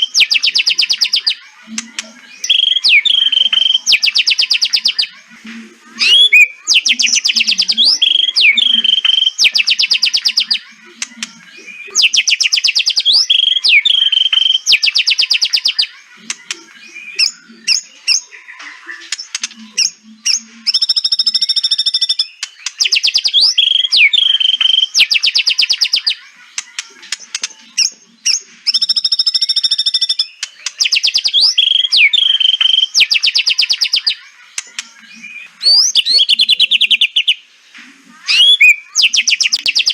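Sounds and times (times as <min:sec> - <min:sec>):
harsh buzzy bird calls: 0:00.0 - 0:39.9
gliding whistled bird notes: 0:02.2 - 0:05.2, 0:05.8 - 0:10.6, 0:16.7 - 0:26.1, 0:28.3 - 0:34.2, 0:35.0 - 0:37.4, 0:38.2 - 0:39.9.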